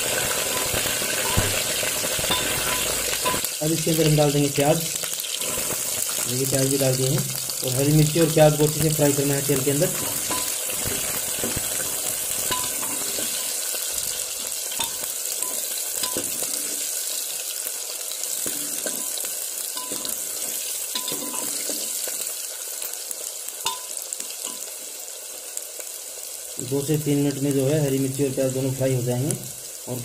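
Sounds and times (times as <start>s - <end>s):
onions sizzling in hot oil: 0.0s - 30.0s
ladle scraping and tapping pot: 10.0s - 10.6s, 12.4s - 13.6s.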